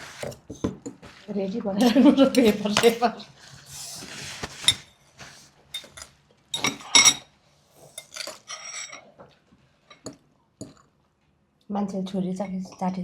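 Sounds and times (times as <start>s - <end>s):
utensils clinking against bowls: 1.8s - 3.1s, 5.7s - 9.1s.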